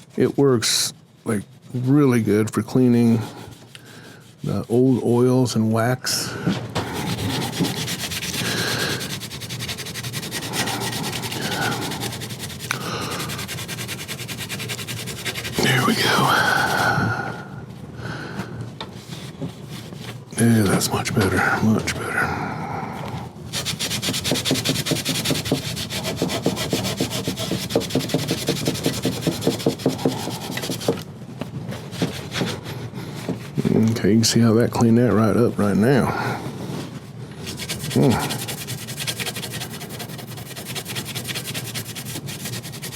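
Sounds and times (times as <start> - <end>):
hand scrubbing wood: 1.3 - 5.5, 6.8 - 17.2, 23.5 - 31.0, 31.7 - 33.7, 37.4 - 42.9.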